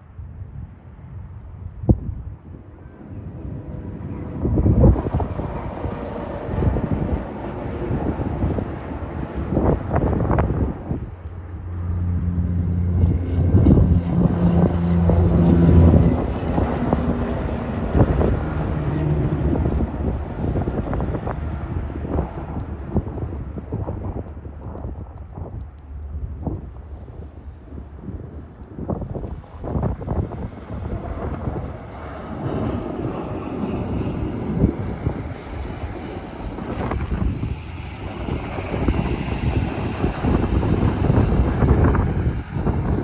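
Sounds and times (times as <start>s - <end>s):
wind buffeting microphone: 0.0s - 43.0s
truck traffic rumble: 1.2s - 43.0s
truck diesel engine droning: 11.6s - 20.4s.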